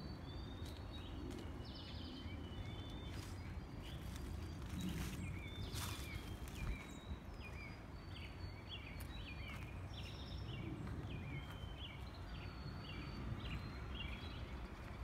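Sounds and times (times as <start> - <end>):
songbirds chirping and singing: 0.0 - 15.0
steady low rumble: 0.0 - 15.0.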